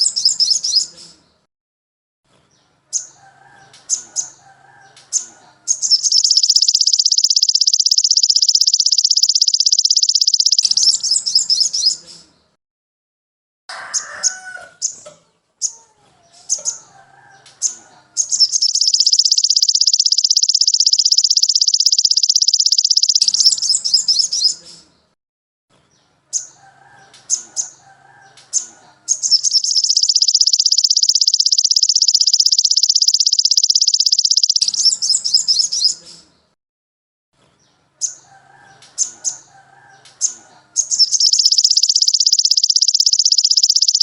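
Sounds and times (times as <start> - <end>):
songbird chirps and warbling: 0.0 - 1.5, 2.4 - 12.6, 13.8 - 25.2, 25.8 - 36.6, 37.4 - 44.0
buzzing bird trills: 5.7 - 11.7, 18.2 - 24.3, 29.1 - 35.9, 40.8 - 44.0.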